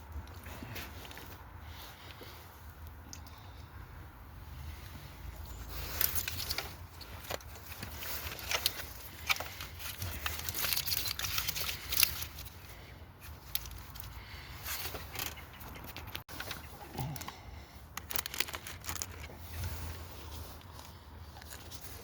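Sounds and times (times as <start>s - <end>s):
hand tools and metal parts rattling: 4.6s - 22.0s.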